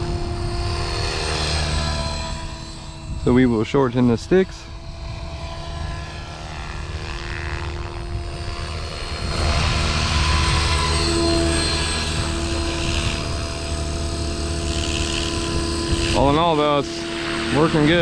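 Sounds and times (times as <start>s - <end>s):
rc helicopter motor whine: 0.0s - 18.0s.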